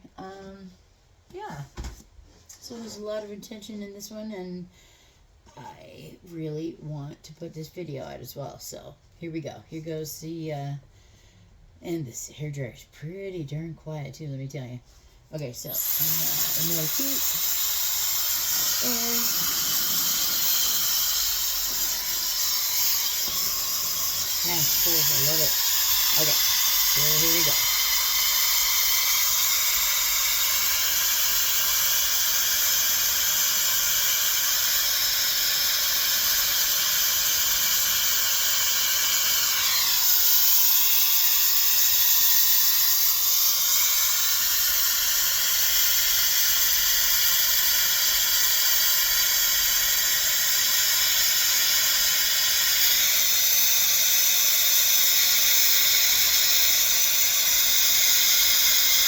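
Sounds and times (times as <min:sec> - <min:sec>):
hair dryer blowing: 0:15.7 - 0:59.0.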